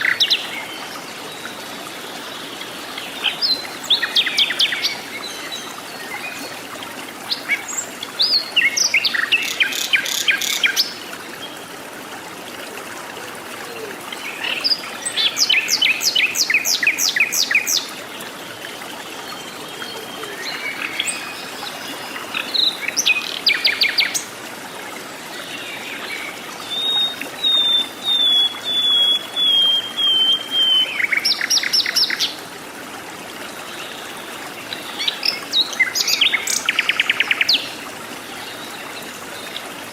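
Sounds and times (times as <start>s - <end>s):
bird whistled notes: 26.9s - 31.0s.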